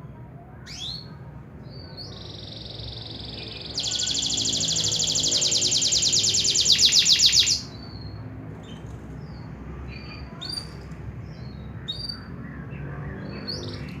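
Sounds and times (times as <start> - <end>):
canary rapid trill: 1.7 - 7.9
canary chirps and whistles: 1.7 - 8.2.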